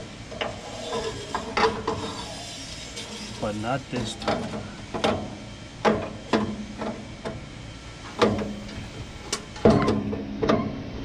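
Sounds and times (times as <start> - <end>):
metallic clanks and knocks: 4.0 - 7.4, 9.6 - 10.8.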